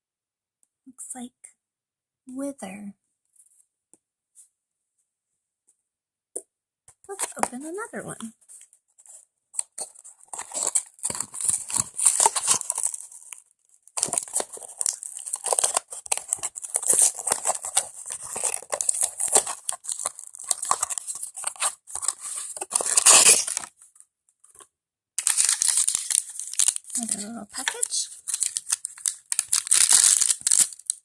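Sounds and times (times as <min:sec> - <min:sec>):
packaging crinkling and tearing: 0:09.6 - 0:23.7, 0:25.2 - 0:31.0.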